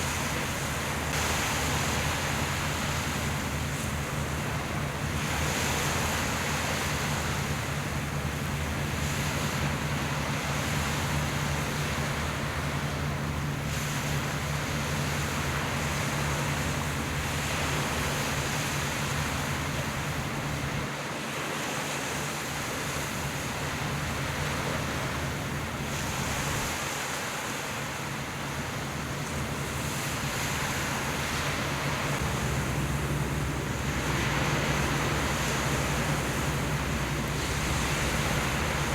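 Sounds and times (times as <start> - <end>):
boat engine humming: 0.0 - 38.9
sea noise: 0.0 - 38.9
wind buffeting microphone: 22.6 - 38.9.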